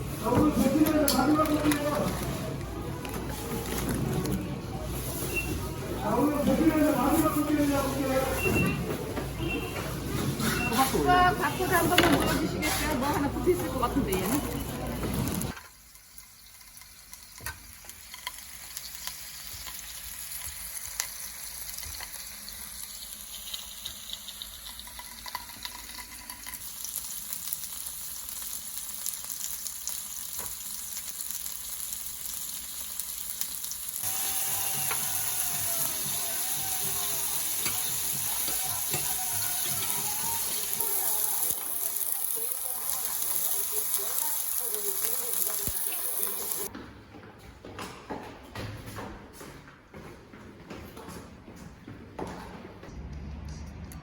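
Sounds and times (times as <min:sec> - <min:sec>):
food sizzling in a pan: 0:09.9 - 0:46.7.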